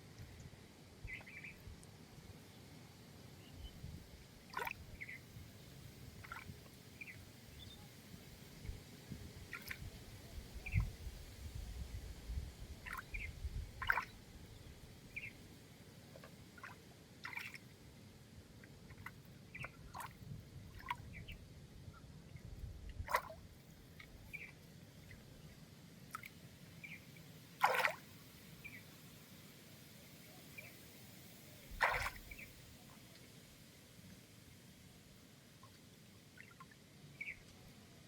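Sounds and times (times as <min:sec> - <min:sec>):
water dripping and splashing: 0:27.6 - 0:28.0, 0:31.8 - 0:32.4.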